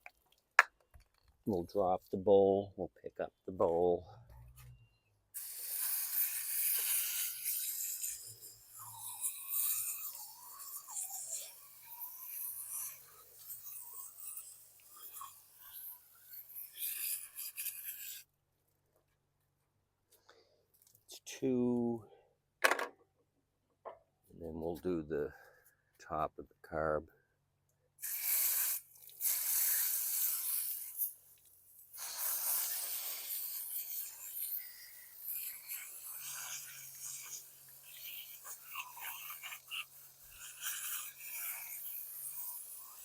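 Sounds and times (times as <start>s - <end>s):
scrubbing and hissing: 5.4s - 18.3s, 28.0s - 43.0s.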